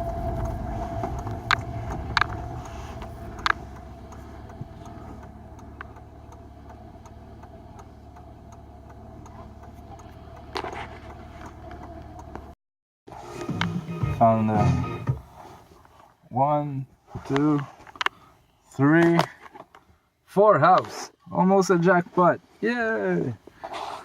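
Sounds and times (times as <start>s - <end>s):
faint steady hum: 0.0s - 6.4s
car engine and road rumble: 0.0s - 24.0s
sharp clicks: 0.4s - 10.5s.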